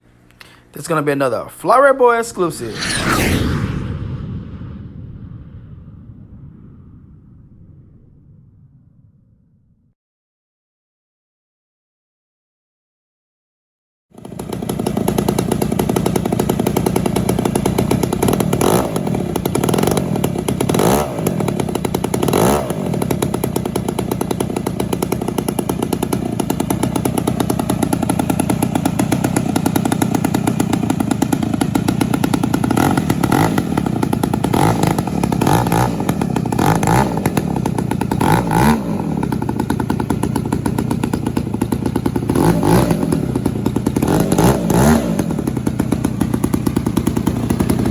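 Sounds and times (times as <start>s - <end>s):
model airplane engine revving: 14.2s - 47.9s.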